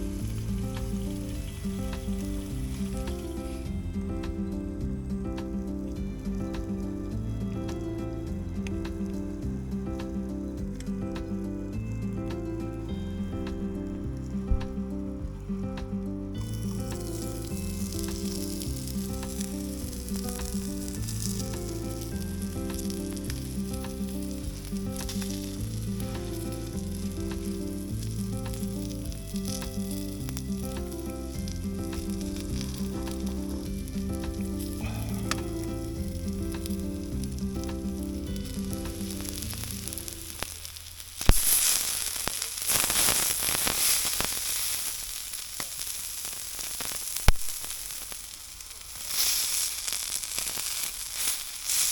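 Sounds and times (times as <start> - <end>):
background music melody: 0.0 - 41.4
food frying sizzle: 0.0 - 51.9.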